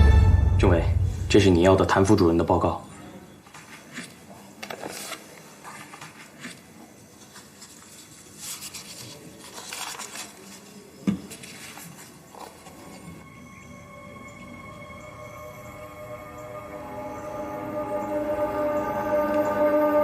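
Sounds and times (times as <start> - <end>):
paper rustling: 3.5 - 13.2.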